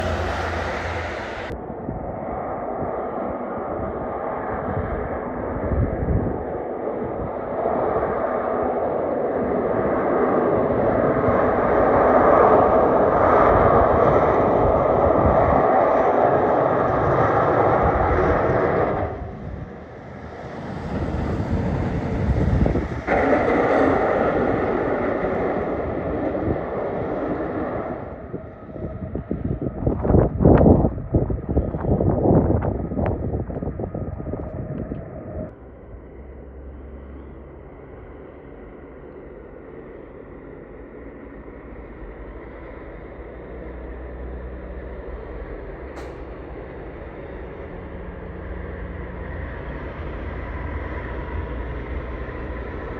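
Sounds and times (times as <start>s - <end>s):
heavy trucks driving past: 0.0s - 1.6s, 35.6s - 52.9s.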